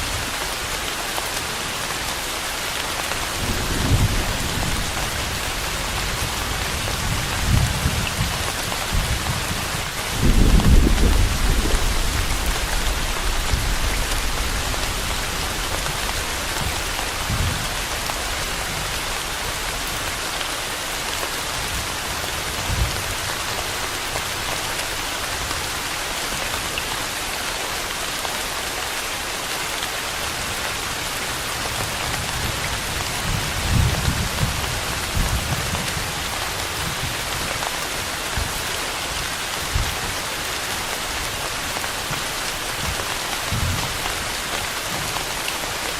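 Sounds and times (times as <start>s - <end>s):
rain falling: 0.0s - 45.9s
thunder rumbling: 3.3s - 20.1s.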